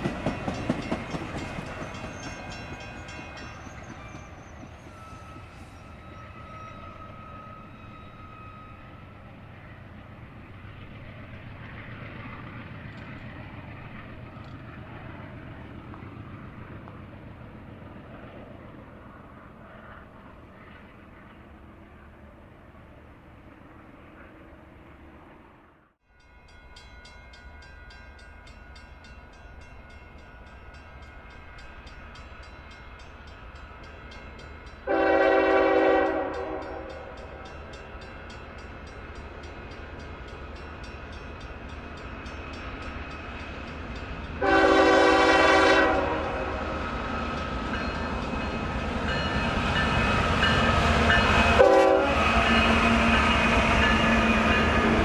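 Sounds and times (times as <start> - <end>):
locomotive engine and wheel rumble: 0.0 - 25.6
locomotive horn blasts: 34.8 - 37.2, 44.4 - 46.7, 51.3 - 54.5.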